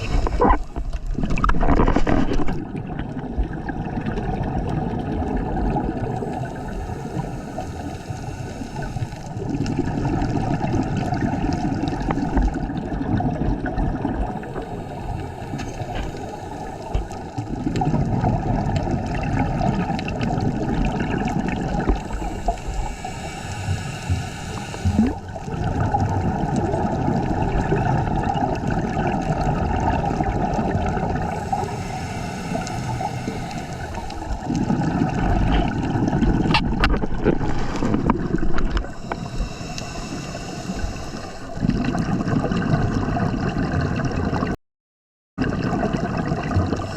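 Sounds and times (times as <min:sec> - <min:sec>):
underwater bubbles gurgling: 0:00.0 - 0:44.6, 0:45.4 - 0:46.9
regulator inhalation hiss: 0:06.2 - 0:09.4, 0:14.4 - 0:17.4, 0:22.0 - 0:25.4, 0:31.2 - 0:34.7, 0:38.9 - 0:41.6.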